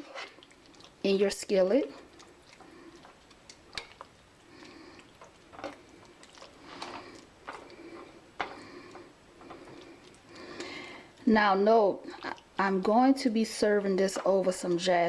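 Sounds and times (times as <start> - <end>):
thick sauce squishing: 0.0 - 10.7
utensil scraping skillet: 0.0 - 11.0.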